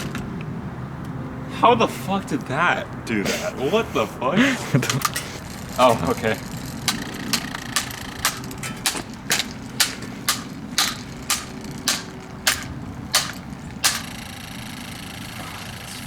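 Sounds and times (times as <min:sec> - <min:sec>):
steady low hum: 0:00.0 - 0:16.0
blows on plastic fan: 0:03.1 - 0:16.0.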